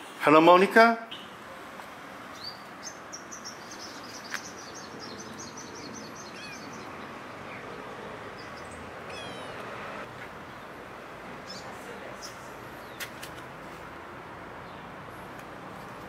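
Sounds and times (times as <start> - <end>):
steady background noise: 0.0 - 16.0
high-pitched animal chirps: 6.3 - 6.8.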